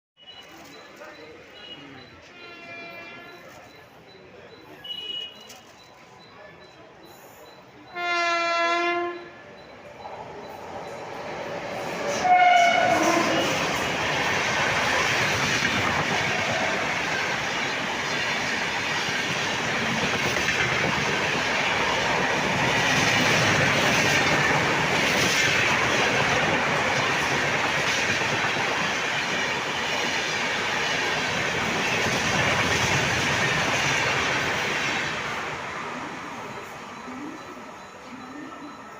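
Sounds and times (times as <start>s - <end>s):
train horn blast: 2.3s - 3.4s, 7.9s - 9.4s, 12.1s - 14.0s
train wheels rumbling on rails: 9.2s - 38.9s.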